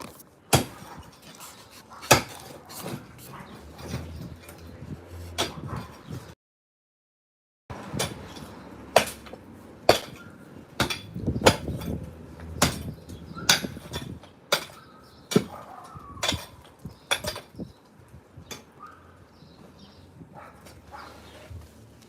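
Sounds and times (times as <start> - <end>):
hammer striking concrete: 8.0 - 12.0, 12.6 - 15.6.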